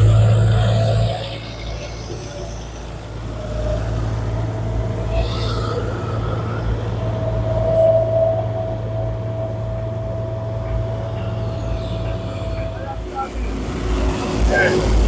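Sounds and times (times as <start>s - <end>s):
vehicle engine running with whine: 0.0s - 15.0s.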